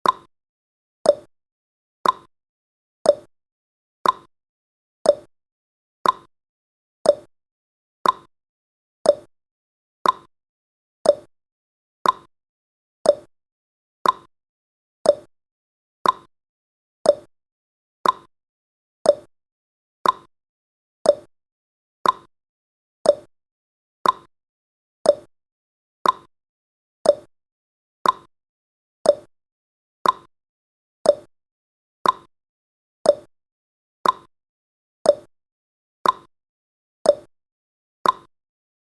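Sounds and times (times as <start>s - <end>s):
clock ticking: 2.0s - 2.3s, 6.0s - 6.3s, 8.0s - 8.3s, 10.0s - 10.3s, 12.0s - 12.3s, 13.1s - 13.3s, 14.0s - 14.3s, 15.1s - 15.3s, 16.0s - 16.3s, 18.0s - 18.3s, 20.0s - 20.3s, 21.1s - 21.3s, 22.0s - 22.3s, 24.0s - 24.3s, 26.0s - 26.3s, 27.1s - 27.3s, 28.0s - 28.3s, 29.1s - 29.3s, 30.0s - 30.3s, 31.1s - 31.3s, 32.0s - 32.3s, 33.1s - 33.3s, 34.0s - 34.3s, 36.0s - 36.3s, 38.0s - 38.3s.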